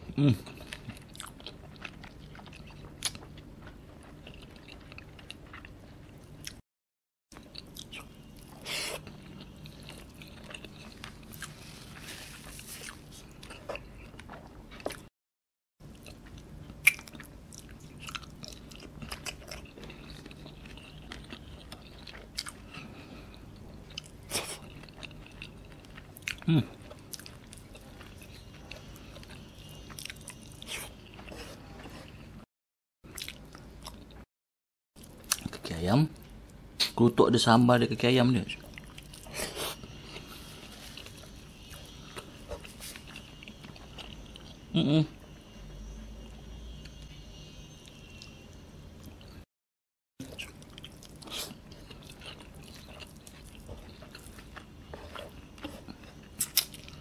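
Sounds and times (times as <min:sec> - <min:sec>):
person chewing food: 0:00.0 - 0:06.6, 0:07.3 - 0:15.1, 0:15.8 - 0:32.5, 0:33.1 - 0:34.3, 0:38.6 - 0:44.7, 0:50.2 - 0:57.0.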